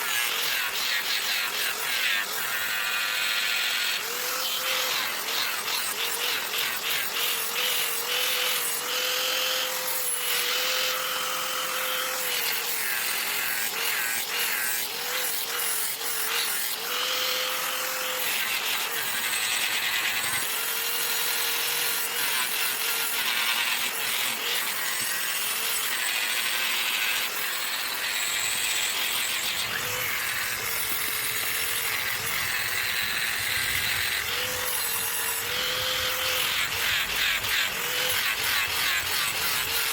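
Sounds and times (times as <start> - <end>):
electric power tool motor: 0.0 - 39.9
harsh rasping of grinding: 0.0 - 39.9.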